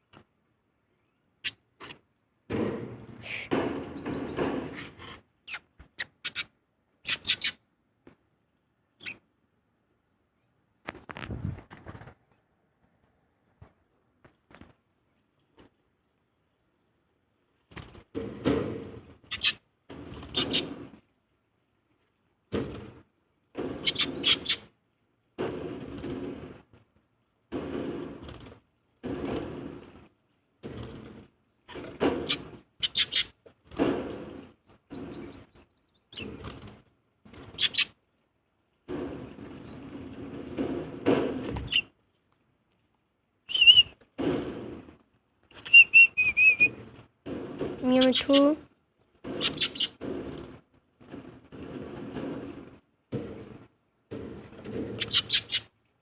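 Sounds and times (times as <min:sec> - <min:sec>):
background noise: 0:00.0 - 0:56.0
bird squawking: 0:03.0 - 0:04.9, 0:05.5 - 0:07.6, 0:19.3 - 0:19.6, 0:23.6 - 0:24.7, 0:32.2 - 0:33.3, 0:37.6 - 0:37.9, 0:43.5 - 0:43.9, 0:45.6 - 0:46.8, 0:49.4 - 0:50.0, 0:55.0 - 0:55.7
bird whistling wavering notes: 0:43.5 - 0:43.9, 0:45.7 - 0:46.7.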